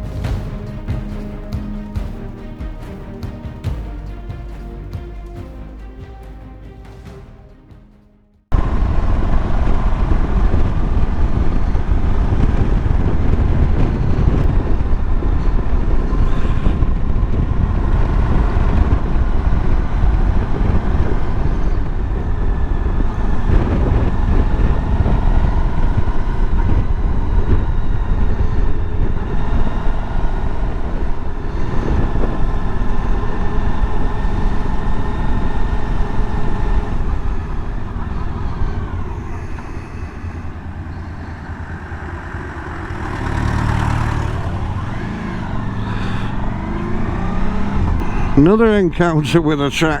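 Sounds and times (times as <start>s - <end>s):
wind rumble on microphone: 8.5s - 48.9s
motorcycle engine running: 8.6s - 48.4s.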